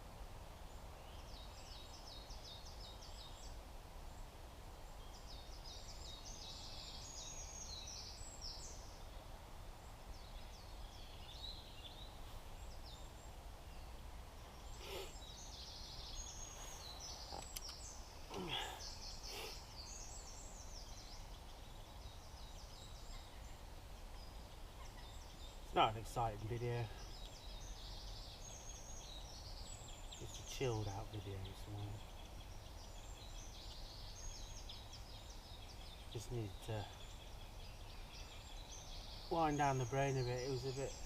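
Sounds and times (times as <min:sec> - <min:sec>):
songbirds twittering: 0:00.0 - 0:41.0
short bird calls: 0:14.5 - 0:21.4.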